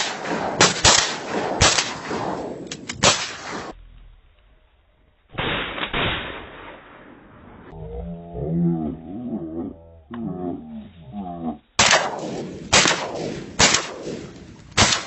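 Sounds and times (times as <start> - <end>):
shotgun shots echoing: 0.0 - 3.7, 11.8 - 15.0.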